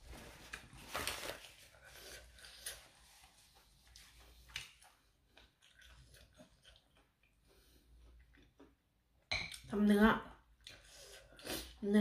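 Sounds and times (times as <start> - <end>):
faint chewing: 0.5 - 9.7, 10.4 - 11.8.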